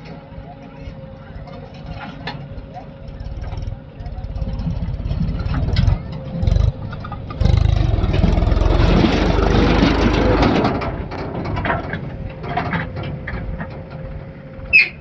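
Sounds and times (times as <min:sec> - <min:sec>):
diesel engine revving: 0:03.0 - 0:12.2.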